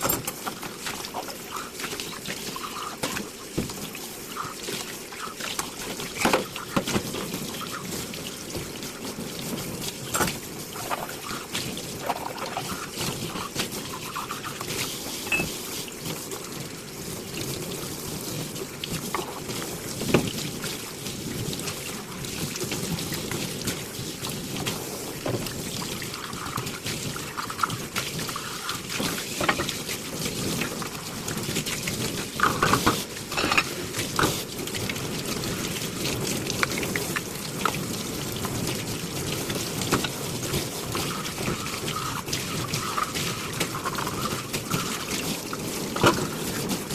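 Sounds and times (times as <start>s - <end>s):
tap water splashing into sink: 0.0s - 16.6s, 18.4s - 46.9s
crockery clinking: 15.3s - 15.5s, 33.3s - 33.7s.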